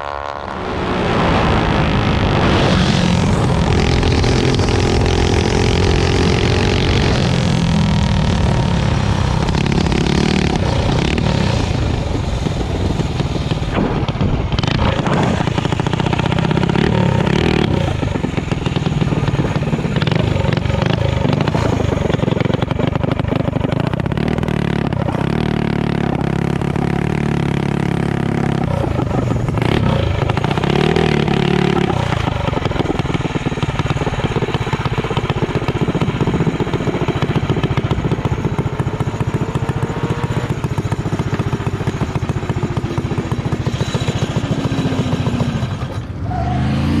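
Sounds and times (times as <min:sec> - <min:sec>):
motorbike engine running loudly: 0:00.0 - 0:47.0
engine clatter: 0:01.2 - 0:46.4.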